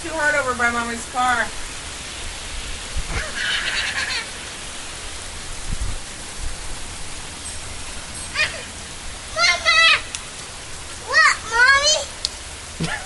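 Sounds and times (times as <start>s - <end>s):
heavy rain: 0.0s - 13.0s
high-pitched cry: 3.1s - 4.4s, 8.4s - 8.8s.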